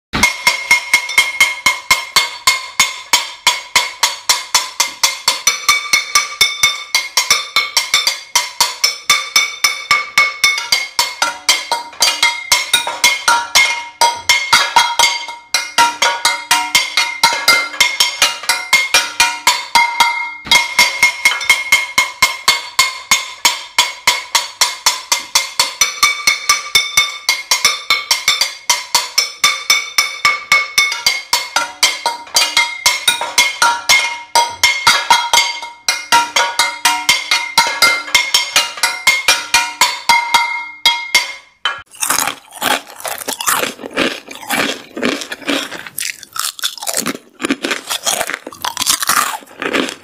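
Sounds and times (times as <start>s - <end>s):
metal pan banging: 0.1s - 50.0s.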